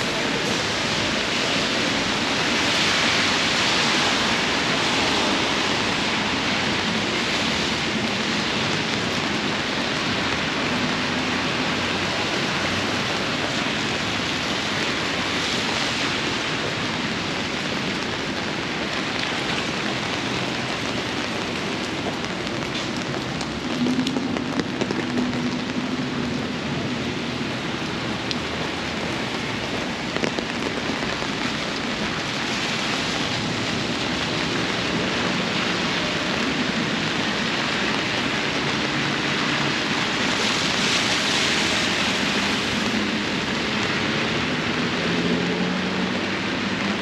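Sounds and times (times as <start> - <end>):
heavy rain hissing: 0.0 - 47.0
raindrop ticks: 17.9 - 26.5, 27.8 - 34.6.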